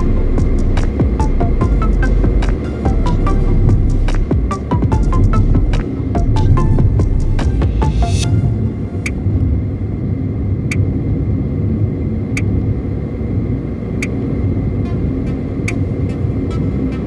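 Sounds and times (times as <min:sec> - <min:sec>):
car road and engine rumble: 0:00.0 - 0:07.9.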